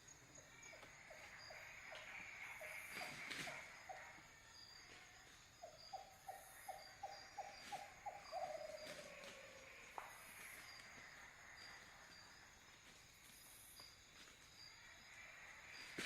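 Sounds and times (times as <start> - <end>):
night animal calling: 0.0 - 12.4
crickets chirping: 0.0 - 16.0.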